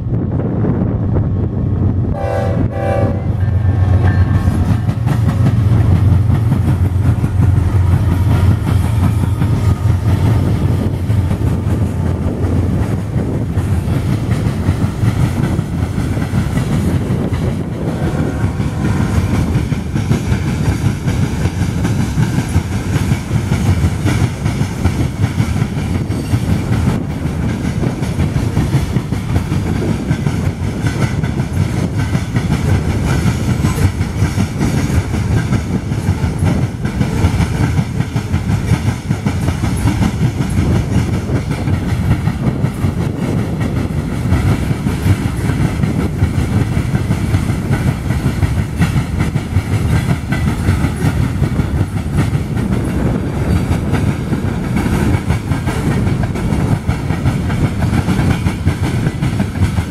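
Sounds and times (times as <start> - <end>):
diesel locomotive rumble: 0.0 - 59.9
train horn blasts: 2.1 - 5.0
train wheels clicking over rail joints: 2.4 - 59.9.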